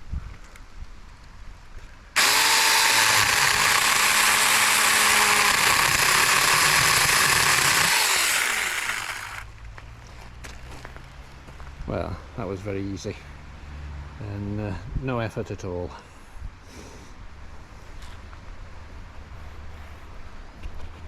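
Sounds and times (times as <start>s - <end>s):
chainsaw cutting branch: 2.2s - 9.4s
motor winding down whine: 2.2s - 9.4s.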